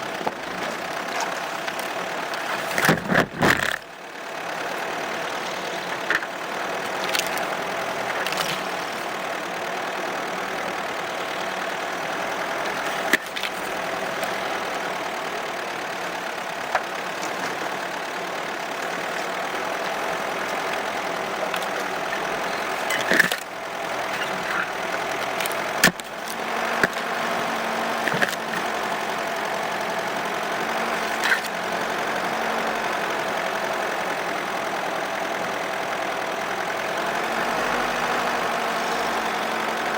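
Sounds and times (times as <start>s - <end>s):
car engine running: 0.0s - 39.9s
car knocks and clatters: 2.4s - 3.9s.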